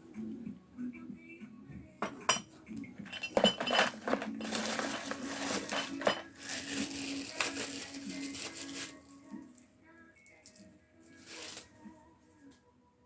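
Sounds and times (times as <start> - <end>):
metal tools clinking: 3.0 - 6.6
rustling: 3.0 - 9.0, 11.2 - 11.8.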